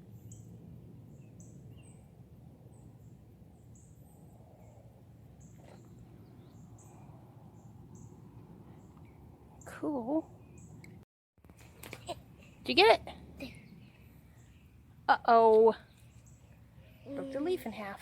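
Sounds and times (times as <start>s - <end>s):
steady low rumble: 0.0s - 9.6s.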